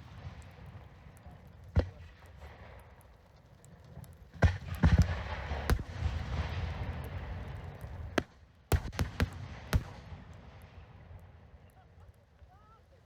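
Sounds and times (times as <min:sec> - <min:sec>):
low rumbling fireworks crackle: 0:00.0 - 0:13.0
fireworks bangs: 0:03.9 - 0:11.7.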